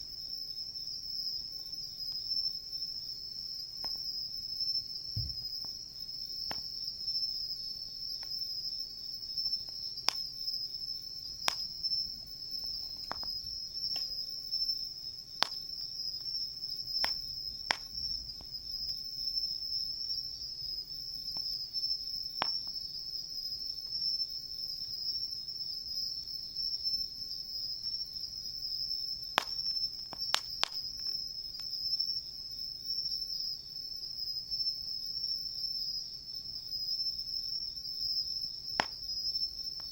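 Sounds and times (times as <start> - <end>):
insects chorus: 0.0 - 39.9
campfire crackling and popping: 9.6 - 10.5, 11.4 - 14.4, 15.3 - 19.3, 22.4 - 22.8, 29.3 - 31.8, 38.7 - 39.9.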